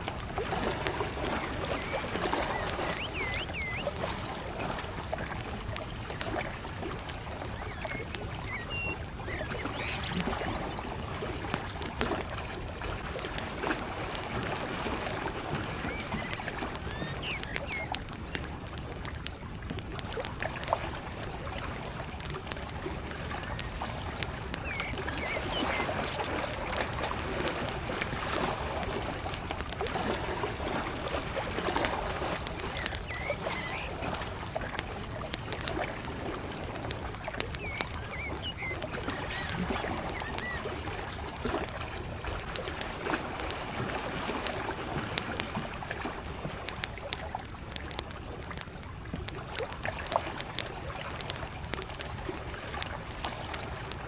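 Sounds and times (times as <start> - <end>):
campfire crackling and popping: 0.0 - 54.0
lake waves lapping: 0.0 - 54.0
bird chirps: 0.6 - 4.4, 7.0 - 11.1, 15.6 - 18.7, 23.4 - 26.8, 32.3 - 34.1, 37.3 - 40.8.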